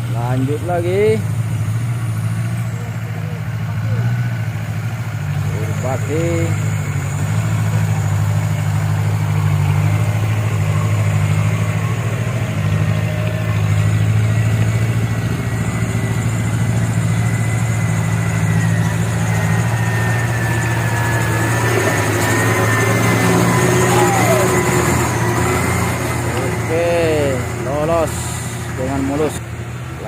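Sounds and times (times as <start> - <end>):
diesel truck engine idling: 0.0 - 30.0.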